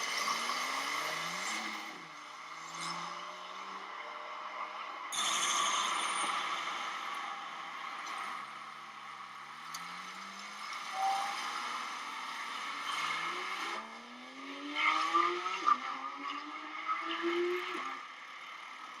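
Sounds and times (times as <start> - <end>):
vehicle engine accelerating: 6.2 - 17.8.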